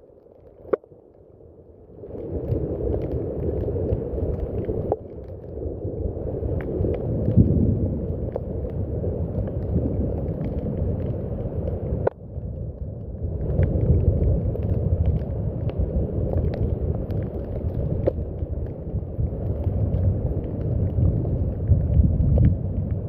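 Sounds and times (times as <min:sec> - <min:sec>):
steady rain rumble: 0:00.0 - 0:23.0
water drip ticks: 0:06.4 - 0:23.0.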